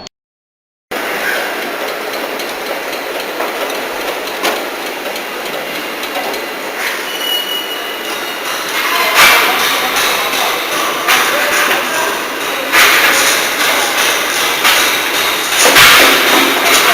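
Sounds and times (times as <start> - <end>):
metallic machinery clatter: 1.0 - 7.1, 8.0 - 16.9
metalworking hiss: 1.0 - 16.9
brief high squeal: 6.8 - 8.1
sharp knock: 12.6 - 16.9.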